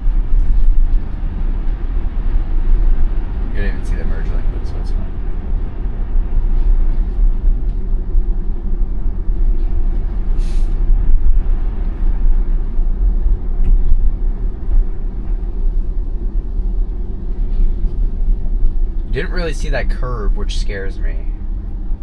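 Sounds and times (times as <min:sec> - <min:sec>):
tyre and road noise in car cabin: 0:00.0 - 0:22.0
brief hiss: 0:10.4 - 0:10.8.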